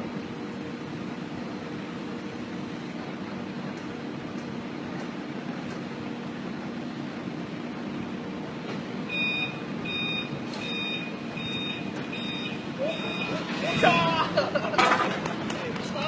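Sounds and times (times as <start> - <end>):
reversing alarm beeping: 9.1 - 14.0.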